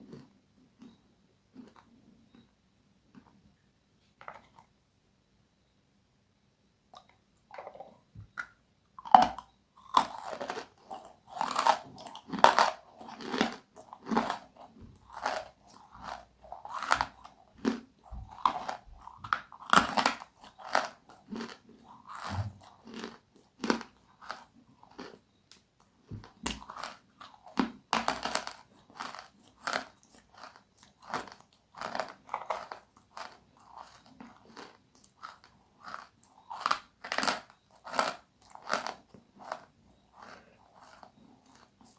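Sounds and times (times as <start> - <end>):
crunchy eating: 0.0 - 2.5, 9.0 - 41.9.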